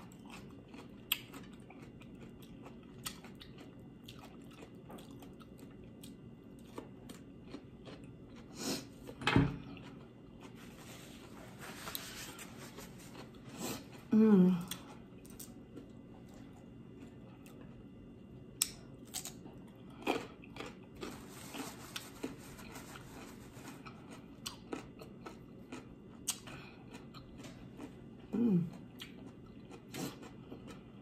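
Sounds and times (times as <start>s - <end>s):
person chewing food: 0.0s - 31.0s
person humming: 14.1s - 14.8s, 28.3s - 28.7s.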